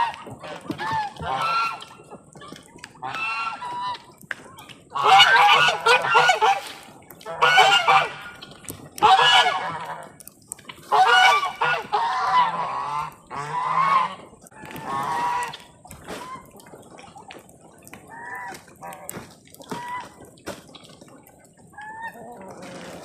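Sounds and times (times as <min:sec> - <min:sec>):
geese honking: 0:00.0 - 0:02.1, 0:03.0 - 0:04.1, 0:04.9 - 0:10.2, 0:10.8 - 0:16.6.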